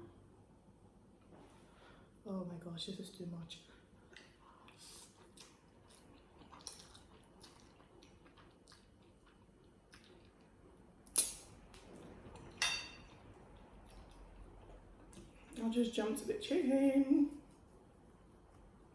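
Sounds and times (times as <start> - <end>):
person chewing: 4.1 - 15.6.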